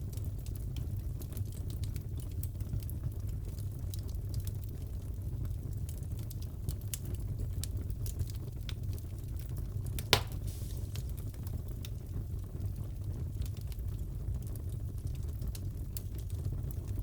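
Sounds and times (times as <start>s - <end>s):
wood fire crackling: 0.0s - 17.0s
loud sharp pop: 10.0s - 11.0s.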